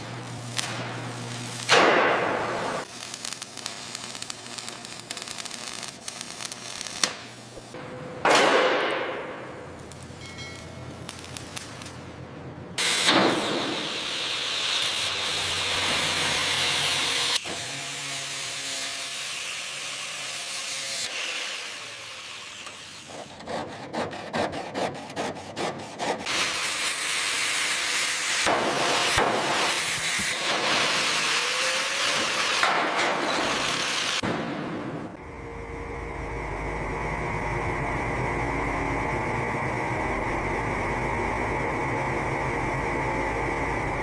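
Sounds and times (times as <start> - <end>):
power tool grinding hiss: 12.8 - 23.1, 26.2 - 34.2.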